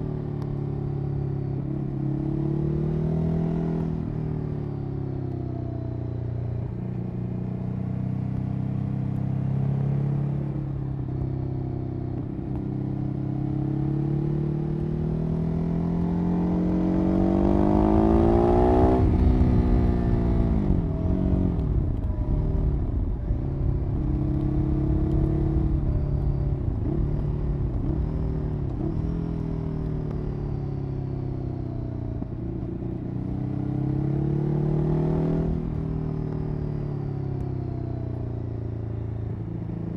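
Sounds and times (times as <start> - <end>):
motorcycle engine revving: 7.8 - 21.6, 32.0 - 37.4.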